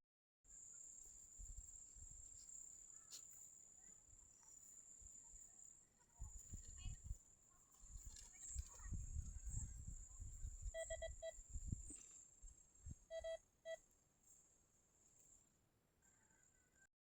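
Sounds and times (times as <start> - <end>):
metal detector beeping: 10.6 - 11.4, 13.1 - 13.8.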